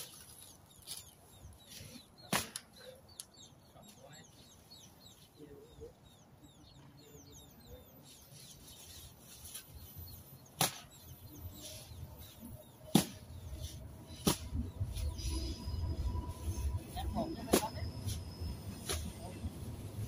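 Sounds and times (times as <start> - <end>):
small bird chirping: 0.0 - 19.4.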